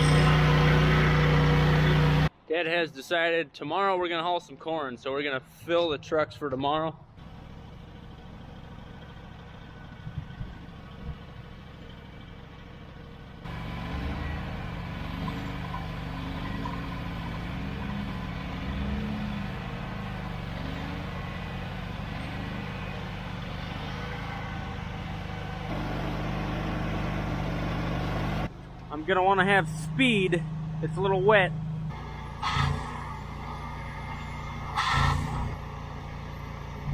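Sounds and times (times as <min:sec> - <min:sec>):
vehicle engine running: 0:00.0 - 0:02.3, 0:07.2 - 0:36.9.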